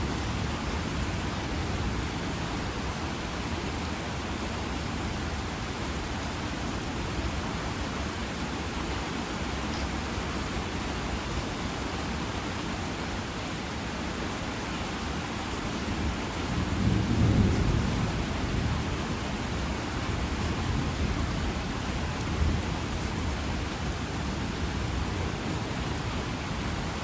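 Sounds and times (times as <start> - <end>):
heavy rain: 0.0 - 27.0
low roll of thunder: 16.4 - 25.8.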